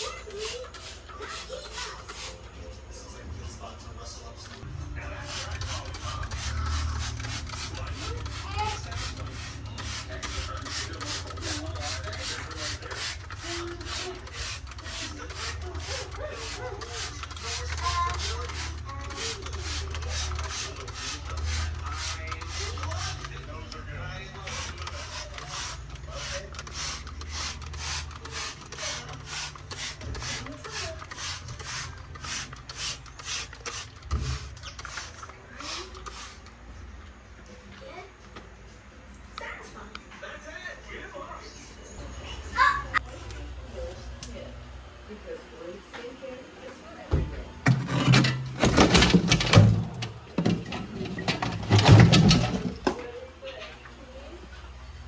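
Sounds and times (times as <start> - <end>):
rhythmic scrubbing by hand: 0.0 - 2.5, 5.2 - 23.4, 24.4 - 36.5.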